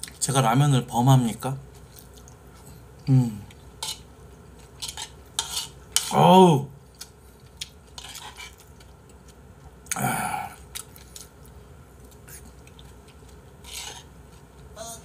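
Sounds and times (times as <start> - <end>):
person chewing food: 1.8 - 2.8, 6.9 - 14.8.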